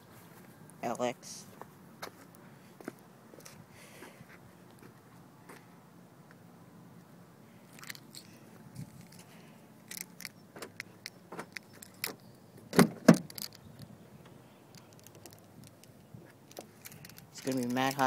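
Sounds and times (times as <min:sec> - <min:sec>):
car keys jangling: 0:07.7 - 0:12.2, 0:13.0 - 0:13.6, 0:14.8 - 0:18.0
small clicks: 0:14.7 - 0:17.8.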